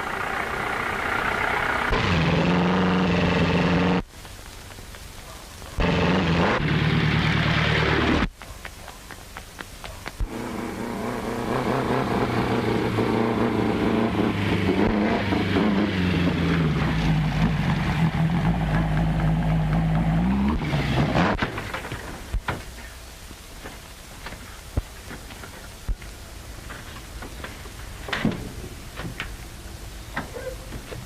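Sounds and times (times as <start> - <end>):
racing car engine: 0.0 - 4.1, 5.8 - 8.3, 10.2 - 21.6.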